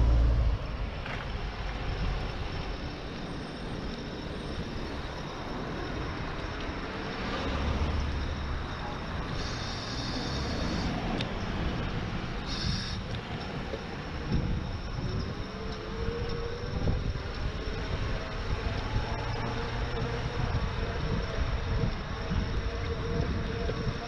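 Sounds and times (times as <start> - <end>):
road and tyre noise: 0.0 - 24.0
high-pitched whines: 1.7 - 24.0
wind buffeting microphone: 10.9 - 24.0.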